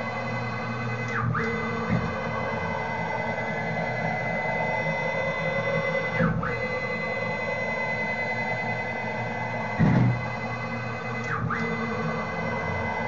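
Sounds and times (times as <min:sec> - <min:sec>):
stepper motors whining: 0:00.0 - 0:13.0
low thump: 0:09.8 - 0:10.2.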